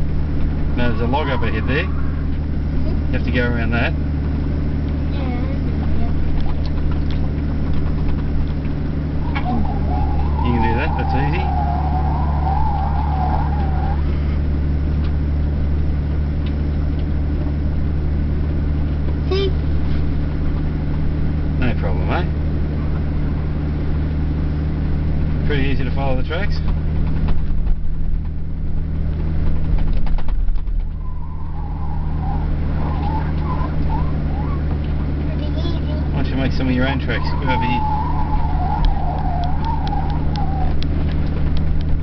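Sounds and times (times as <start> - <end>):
car engine running: 0.0 - 42.0
wavering higher tone: 9.1 - 14.4, 36.6 - 41.0.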